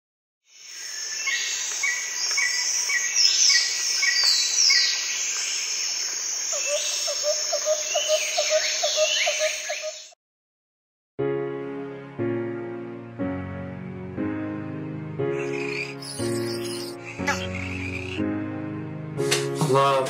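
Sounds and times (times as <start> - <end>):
high insect hiss: 0.5 - 10.0, 15.4 - 18.2
birds calling and chirping: 0.8 - 10.2, 15.3 - 18.2.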